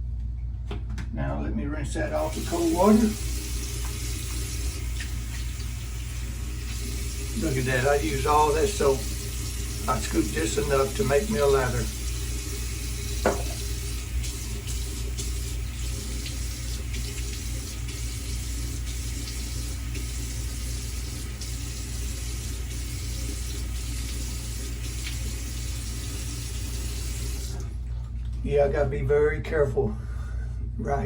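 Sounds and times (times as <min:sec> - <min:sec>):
tap running into sink: 0:03.6 - 0:05.7, 0:13.1 - 0:18.1.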